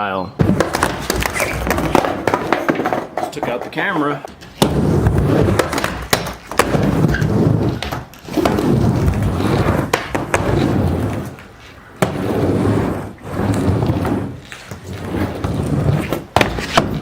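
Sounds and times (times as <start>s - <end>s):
skateboard clacking on ramp: 0.4s - 7.1s
skateboard wheels rumbling: 0.4s - 17.0s.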